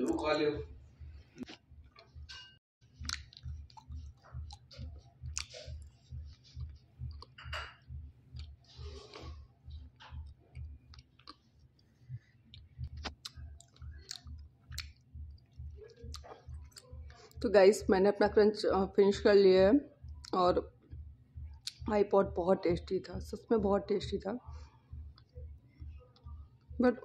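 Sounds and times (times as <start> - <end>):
chewing with soft crunching: 3.0 - 17.4, 21.5 - 21.9.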